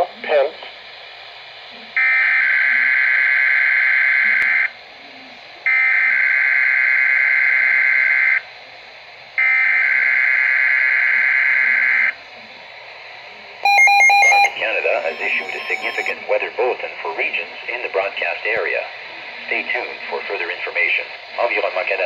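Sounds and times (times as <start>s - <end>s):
warbling data tones: 13.6s - 16.6s.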